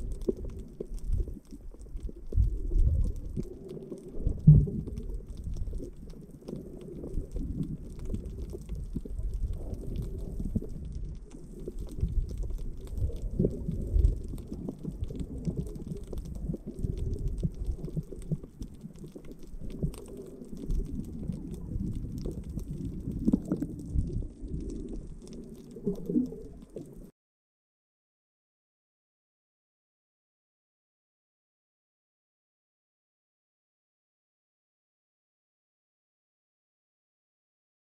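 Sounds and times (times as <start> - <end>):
bubbling: 0.0 - 27.1
underwater water sloshing: 0.0 - 27.1.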